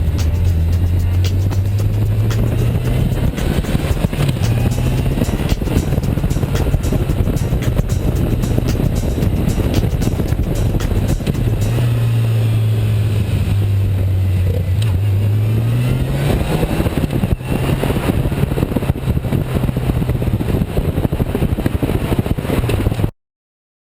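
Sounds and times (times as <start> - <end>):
loud rushing noise: 0.0 - 14.3
motorcycle engine running: 0.0 - 20.6.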